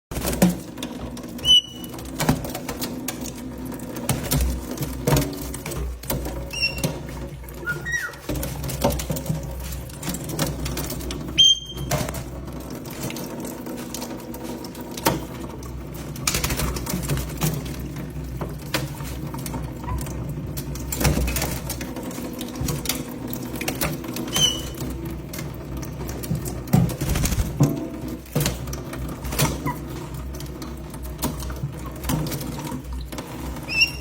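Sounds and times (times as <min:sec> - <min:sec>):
water pattering and splashing: 0:00.1 - 0:34.0
parrots chirping: 0:01.4 - 0:01.9, 0:06.5 - 0:06.9, 0:07.6 - 0:08.3, 0:11.4 - 0:11.9, 0:24.3 - 0:24.8.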